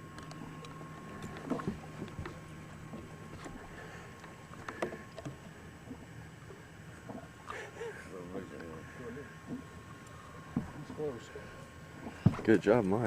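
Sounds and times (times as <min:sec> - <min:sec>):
faint steady hum: 0:00.0 - 0:13.0
light knocks and clicks: 0:12.0 - 0:12.6.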